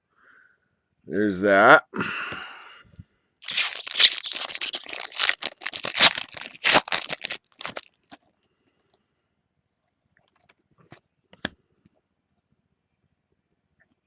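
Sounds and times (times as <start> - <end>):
foil wrapper tearing and crinkling: 3.4 - 8.2.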